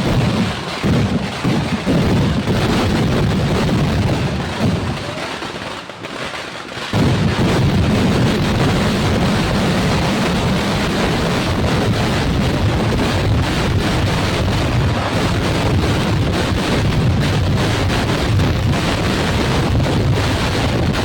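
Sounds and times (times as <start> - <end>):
fireworks explosions: 0.0 - 21.0.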